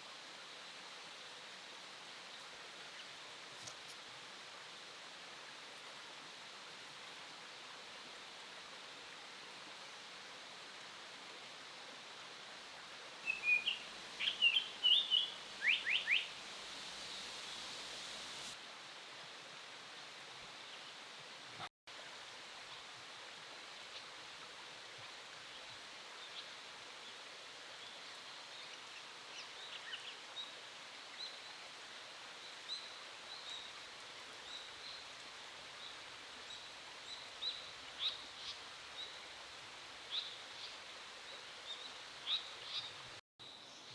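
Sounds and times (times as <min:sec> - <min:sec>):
steady hiss: 0:03.3 - 0:24.3.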